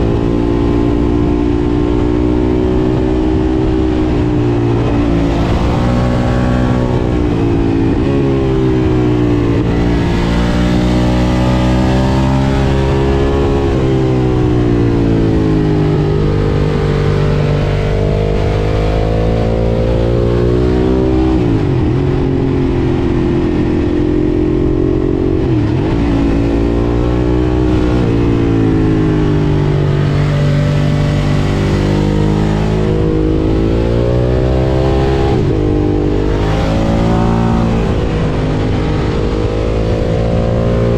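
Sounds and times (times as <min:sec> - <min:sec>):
motorcycle engine revving: 0:00.0 - 0:40.9
wind noise: 0:00.0 - 0:40.9.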